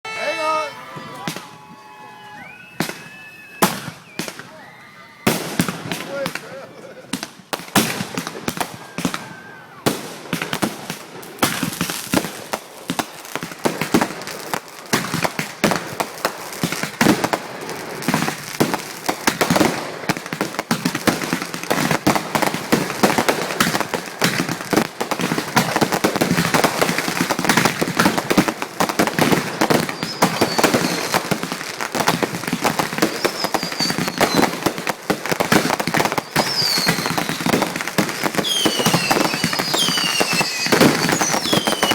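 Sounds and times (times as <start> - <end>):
fireworks falling whistles: 0.1 - 6.1, 7.8 - 10.5, 20.8 - 41.9
fireworks bangs and crackling: 0.1 - 41.9.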